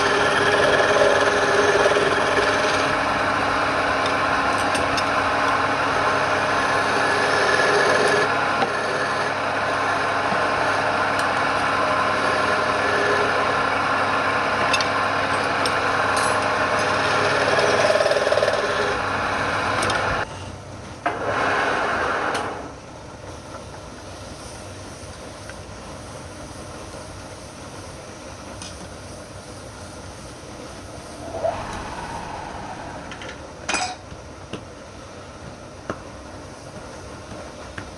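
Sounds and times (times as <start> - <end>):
wood lathe humming: 0.0 - 3.7, 6.5 - 9.7, 12.0 - 13.4.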